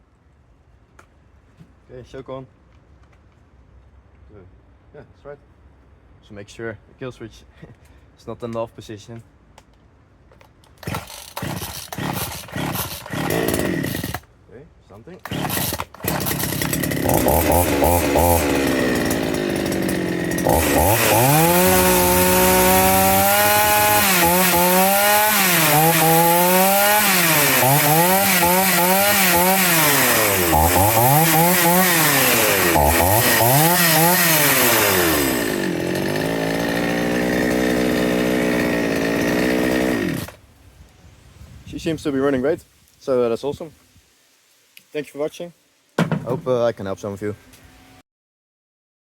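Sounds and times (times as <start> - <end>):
chainsaw idling and revving: 10.8 - 14.3, 15.2 - 40.4.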